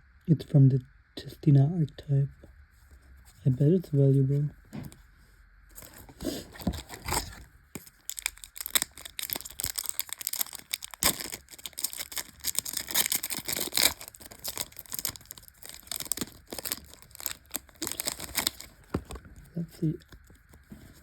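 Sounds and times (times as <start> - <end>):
foil tearing: 5.8 - 19.2
foil wrapper crinkling: 5.8 - 21.0.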